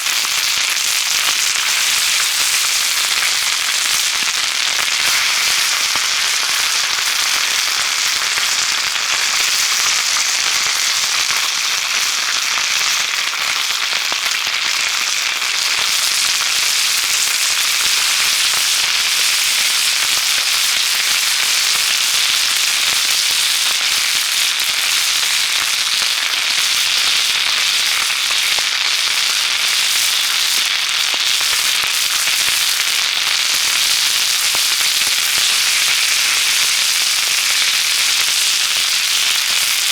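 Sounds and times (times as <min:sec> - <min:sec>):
meat sizzling over campfire: 0:00.0 - 0:39.9.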